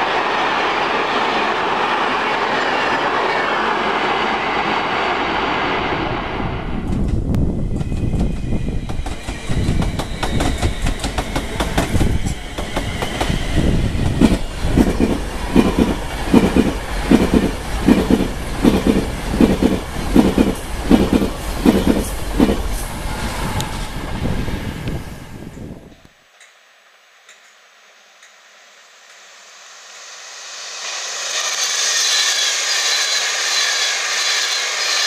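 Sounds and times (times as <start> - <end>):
train wheels rumbling on rails: 0.0 - 26.5, 29.9 - 35.0
wheels clickety-clack over rail joints: 6.9 - 13.4, 14.0 - 22.9.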